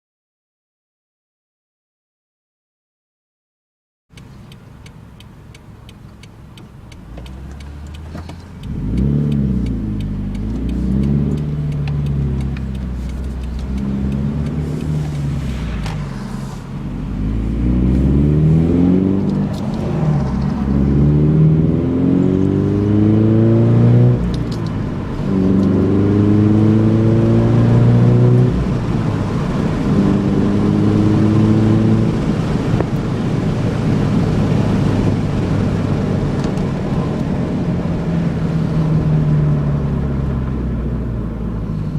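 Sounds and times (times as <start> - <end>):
car exhaust idling low: 4.1 - 18.2
car accelerating through gears: 5.8 - 41.9.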